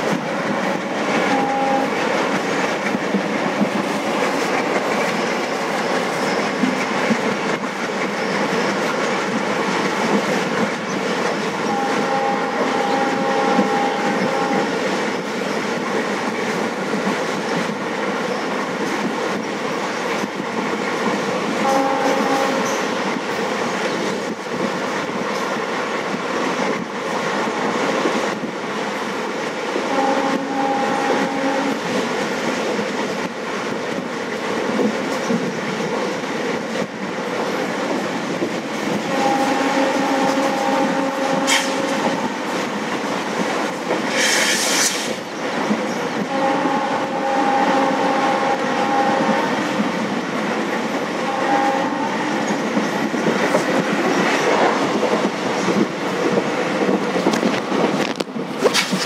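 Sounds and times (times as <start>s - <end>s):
train wheels on rails: 0.0s - 59.0s
locomotive horn blasts: 1.1s - 2.0s, 11.6s - 14.8s, 21.6s - 23.0s, 29.8s - 32.0s, 39.1s - 42.5s, 46.2s - 49.8s, 51.2s - 52.4s.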